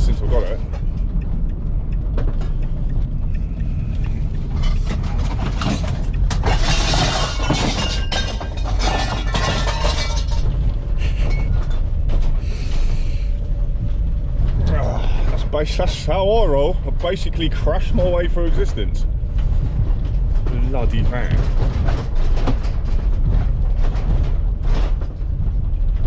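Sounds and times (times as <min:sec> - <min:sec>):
van engine and road rumble: 0:00.0 - 0:26.0
loose metal rattling: 0:00.5 - 0:12.4.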